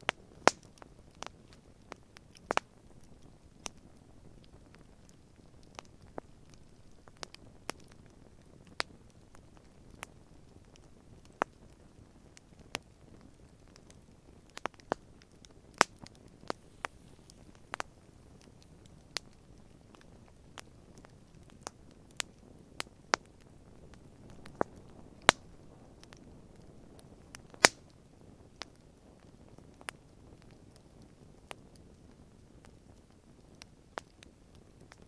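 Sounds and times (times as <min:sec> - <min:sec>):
campfire crackling and popping: 0:00.1 - 0:35.0
flames rustling: 0:14.6 - 0:22.6.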